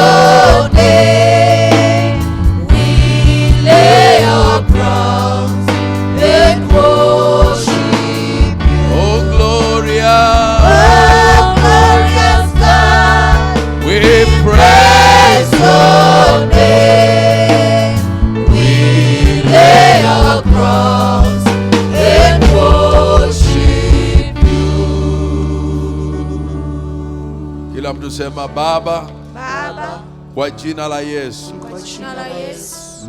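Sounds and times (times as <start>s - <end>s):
band with bass and beat: 0.0s - 26.4s
voices singing gospel: 0.0s - 33.0s.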